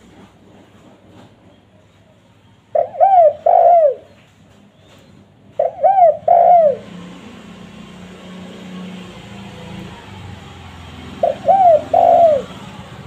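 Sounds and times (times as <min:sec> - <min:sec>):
dove cooing: 0:02.7 - 0:04.2, 0:05.5 - 0:07.4, 0:11.0 - 0:12.8.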